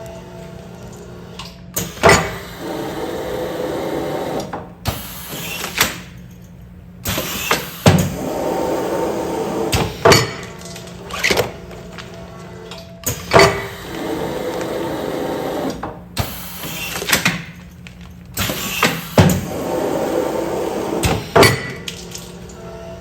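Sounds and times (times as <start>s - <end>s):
machine running: 0.0s - 23.0s
sealing machine clunks: 1.8s - 3.2s, 9.5s - 22.4s.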